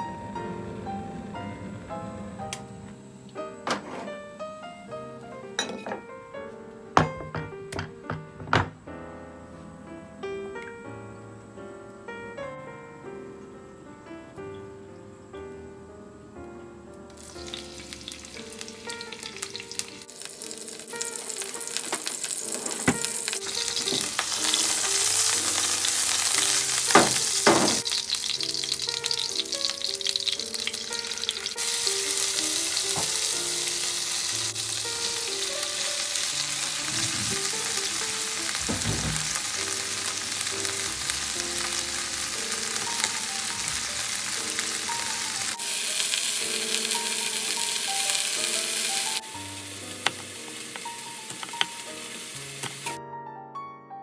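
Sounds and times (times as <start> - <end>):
garlic sizzling in oil: 17.2 - 53.0.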